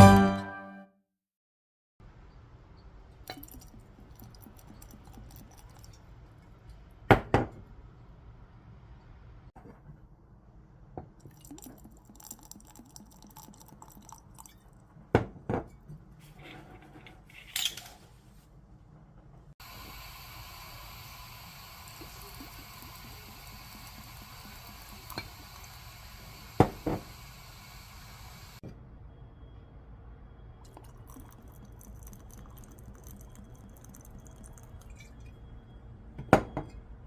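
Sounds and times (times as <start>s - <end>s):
steady hiss: 19.6s - 28.6s.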